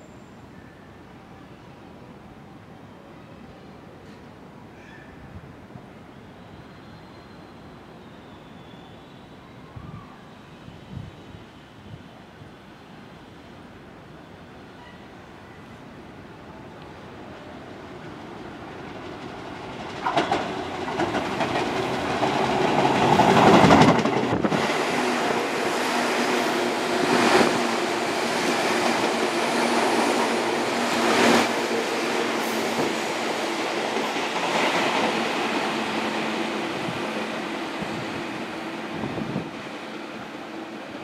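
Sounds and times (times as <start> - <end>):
electric train passing: 15.4 - 41.0
wheels clattering over rail joints: 19.2 - 24.4.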